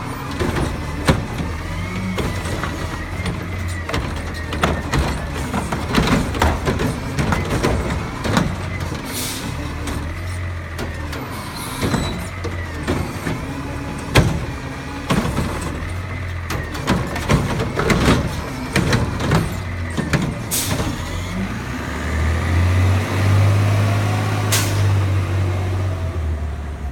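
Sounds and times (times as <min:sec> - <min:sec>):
metal clanks and knocks: 0:00.0 - 0:21.2
garbage truck diesel engine: 0:00.0 - 0:26.9.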